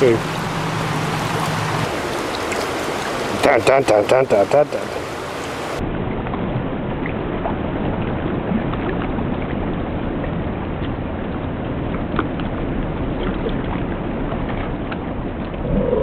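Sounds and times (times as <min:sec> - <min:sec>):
river water rushing over rocks: 0:00.0 - 0:05.8.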